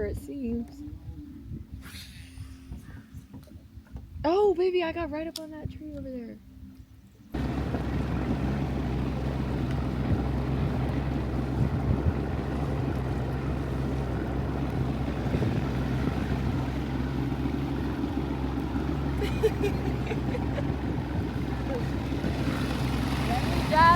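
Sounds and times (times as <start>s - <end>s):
motorboat engine hum: 7.0s - 23.9s
wind and water rushing: 7.4s - 23.9s.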